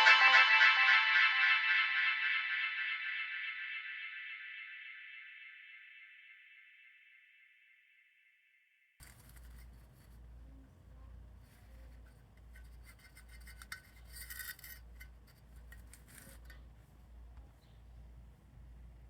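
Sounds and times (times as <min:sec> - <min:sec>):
handling rubbing and clicks: 0:09.0 - 0:10.3, 0:11.5 - 0:16.8.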